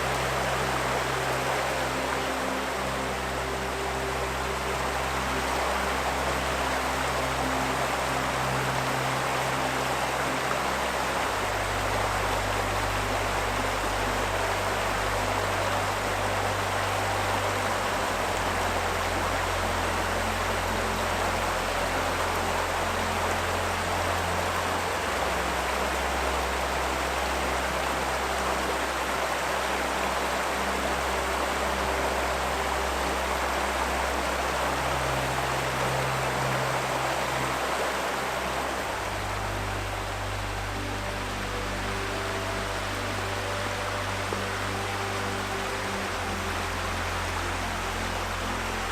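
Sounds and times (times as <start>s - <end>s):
river water rushing: 0.0s - 48.9s
soft background music: 0.0s - 48.9s.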